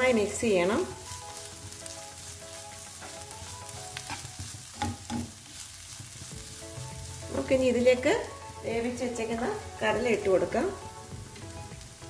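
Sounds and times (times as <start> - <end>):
food sizzling in hot oil: 0.0 - 12.0
spatula stirring and scraping: 0.8 - 7.7
spatula knocking on pan: 4.0 - 7.0.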